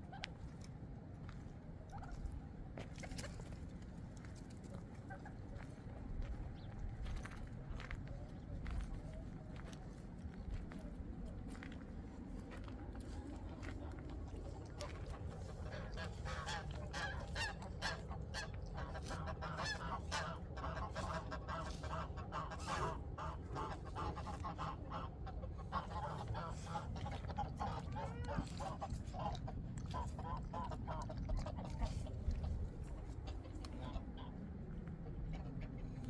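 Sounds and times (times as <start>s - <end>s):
geese honking: 14.9s - 31.9s.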